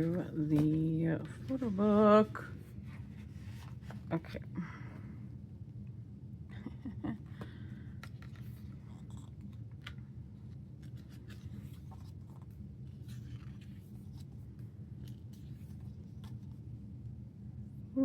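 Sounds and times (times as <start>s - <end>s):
paper rustling: 0.0s - 4.4s, 8.0s - 16.7s
steady low hum: 0.0s - 18.0s.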